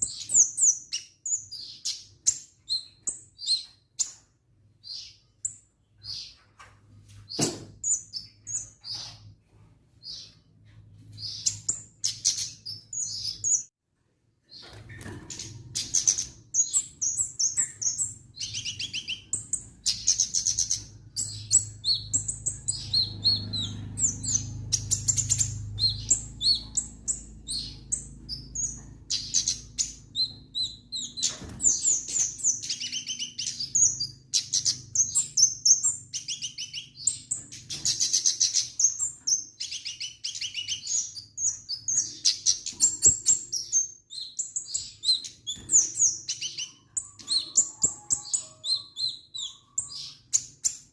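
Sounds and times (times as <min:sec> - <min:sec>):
songbird chirps and trills: 0:14.4 - 0:50.9.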